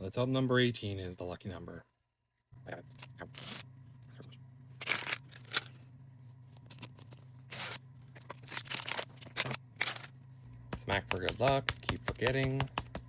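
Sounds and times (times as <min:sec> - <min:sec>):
plastic wrapping crinkling and tearing: 0:04.8 - 0:05.8, 0:06.7 - 0:10.1.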